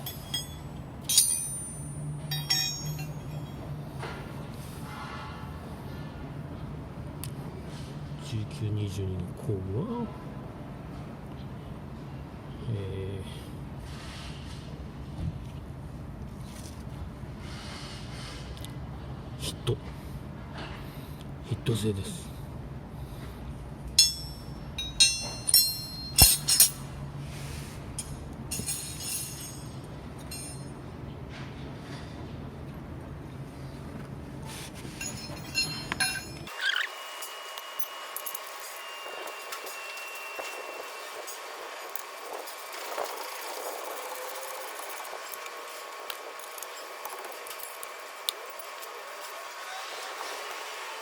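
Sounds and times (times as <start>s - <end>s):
hand tools clicking: 0.0s - 3.5s, 24.0s - 26.8s
wrenches clinking: 0.0s - 3.8s, 23.9s - 27.0s, 28.0s - 30.8s, 34.8s - 49.3s.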